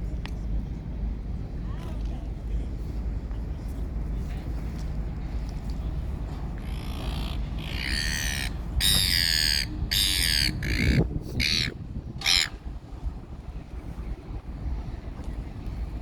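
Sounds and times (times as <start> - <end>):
steady low rumble: 0.0 - 16.0
bird calling harshly: 6.6 - 12.6.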